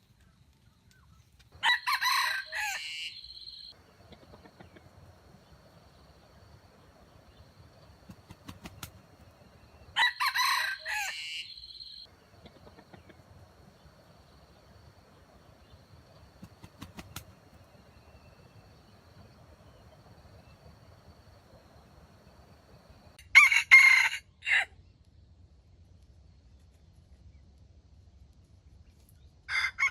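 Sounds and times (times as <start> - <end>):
rooster crowing: 1.6 - 3.7, 10.0 - 12.1, 23.2 - 24.7, 29.5 - 29.9.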